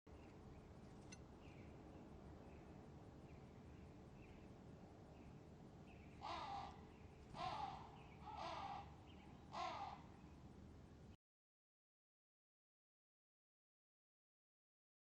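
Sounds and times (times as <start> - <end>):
faint outdoor background noise: 0.1 - 11.2
crow cawing: 6.2 - 6.8, 7.4 - 10.1.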